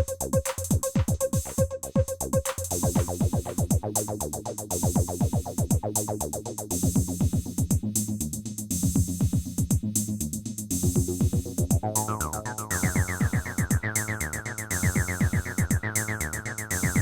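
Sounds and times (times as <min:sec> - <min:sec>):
kick drums: 0:00.0 - 0:03.8, 0:07.0 - 0:07.8, 0:08.8 - 0:09.9, 0:10.8 - 0:11.9, 0:12.8 - 0:13.9, 0:14.9 - 0:15.9
pulsing synth bass line: 0:00.0 - 0:07.6, 0:11.1 - 0:17.0
hissy hi-hat and cymbal: 0:00.0 - 0:17.0.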